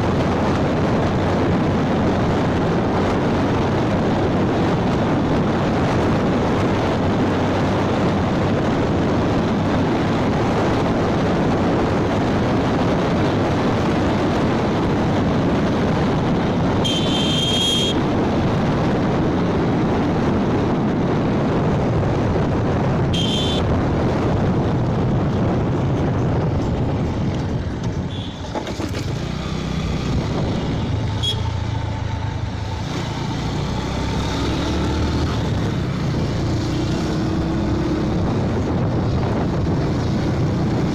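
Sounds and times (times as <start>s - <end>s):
motorbike engine hum: 0.0s - 40.9s
wind noise: 0.0s - 40.9s
motorbike horn beeps: 16.8s - 18.1s, 23.1s - 23.7s, 28.1s - 28.7s, 31.1s - 31.6s.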